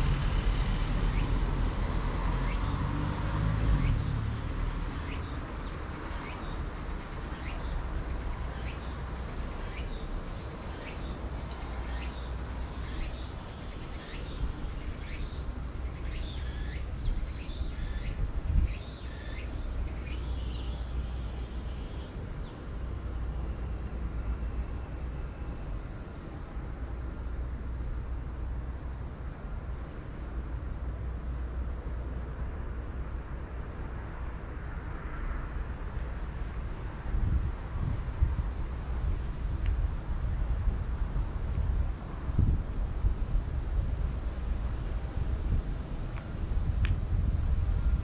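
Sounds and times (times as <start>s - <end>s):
road traffic rumble: 0.0s - 48.0s
vehicle rumble: 0.0s - 48.0s
small birds chirping: 1.1s - 1.5s, 2.4s - 3.0s, 4.8s - 23.7s.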